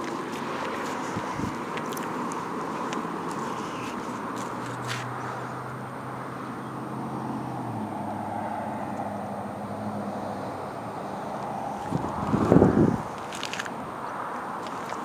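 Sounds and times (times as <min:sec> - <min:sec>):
engine humming: 0:08.9 - 0:15.0.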